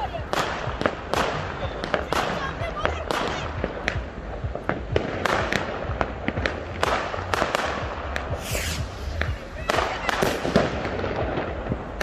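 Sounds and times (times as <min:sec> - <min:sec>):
fireworks bangs and crackles: 0:00.0 - 0:12.0
fireworks hissing: 0:06.4 - 0:11.3.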